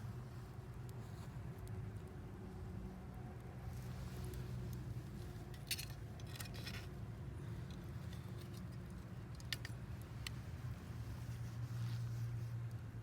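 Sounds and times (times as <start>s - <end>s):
campfire crackling: 7.4s - 11.6s.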